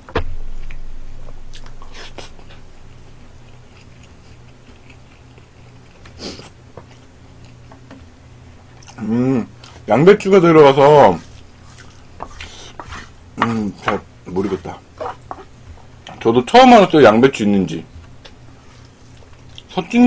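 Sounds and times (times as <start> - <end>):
steady low hum: 0.0 - 20.0
person chewing with full mouth: 1.5 - 7.7, 11.2 - 13.1.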